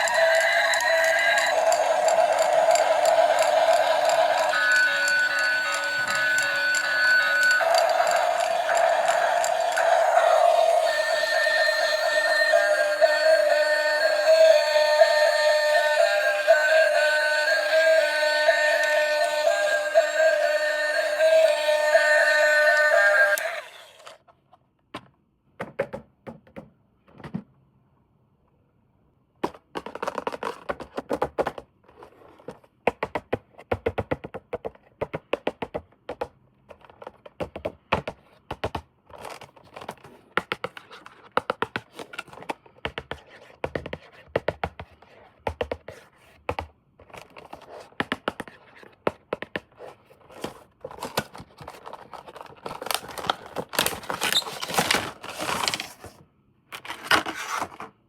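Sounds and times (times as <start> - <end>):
packaging scratching and crinkling: 51.5 - 56.2.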